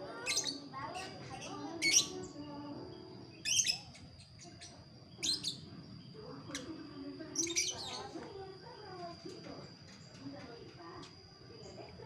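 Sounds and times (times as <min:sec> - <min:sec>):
bird chirping: 0:00.1 - 0:08.2.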